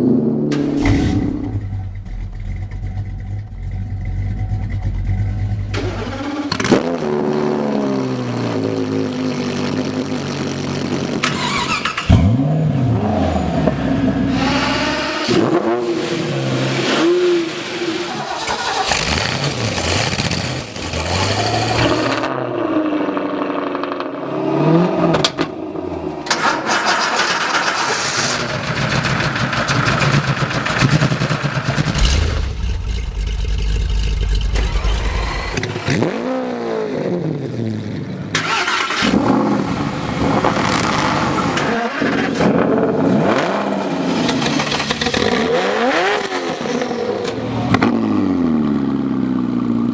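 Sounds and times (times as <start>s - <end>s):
car engines revving: 0.0s - 49.9s
deep low rumble: 0.8s - 5.8s, 31.7s - 35.7s.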